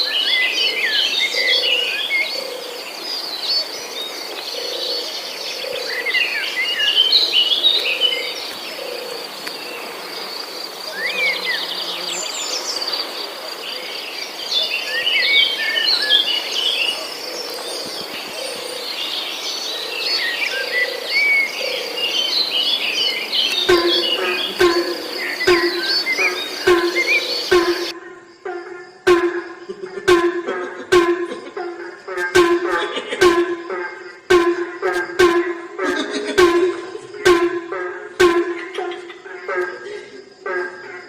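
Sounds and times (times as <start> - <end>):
insect drone: 0.0 - 41.0
bird chirps and trills: 13.7 - 27.9
low repeating call: 23.3 - 28.0, 29.1 - 39.0.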